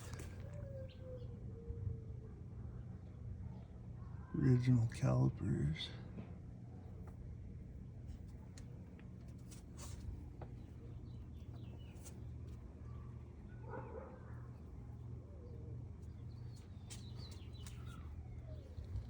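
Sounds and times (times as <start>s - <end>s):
birds chirping: 0.0s - 1.4s, 8.3s - 19.0s
low steady rumble: 0.0s - 19.0s.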